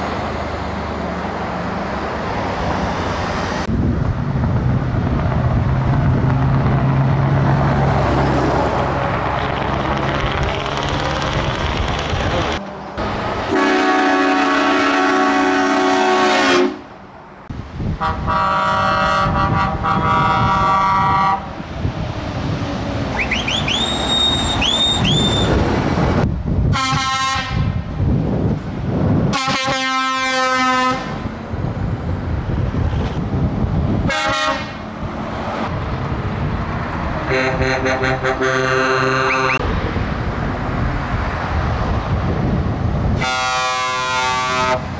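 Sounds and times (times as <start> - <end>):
truck engines and road noise: 0.0 - 44.9
truck air horns blowing: 13.5 - 16.9, 18.0 - 21.5, 26.7 - 27.8, 29.3 - 31.2, 34.0 - 34.8, 37.2 - 39.6, 43.2 - 44.9.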